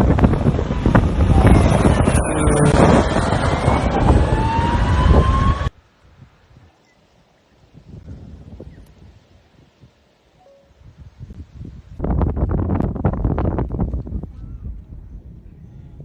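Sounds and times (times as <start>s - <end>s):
loud rumbling engine: 0.0s - 5.7s
rising whine: 0.0s - 5.8s
wind buffeting microphone: 0.0s - 6.7s, 7.7s - 10.0s, 10.8s - 16.0s.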